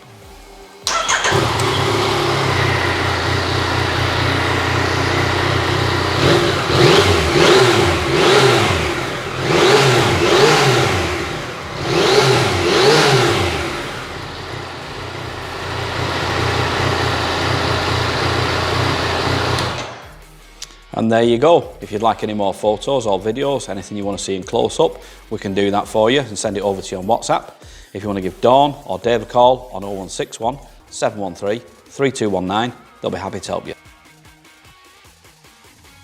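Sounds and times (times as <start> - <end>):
motorcycle engine idling and revving: 0.2 - 20.4.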